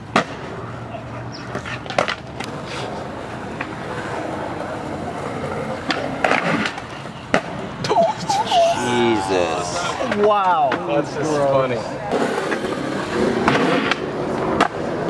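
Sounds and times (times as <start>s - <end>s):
skateboard clacks: 0.0s - 7.8s, 12.1s - 15.0s
skateboard wheels rolling on concrete: 0.0s - 15.0s.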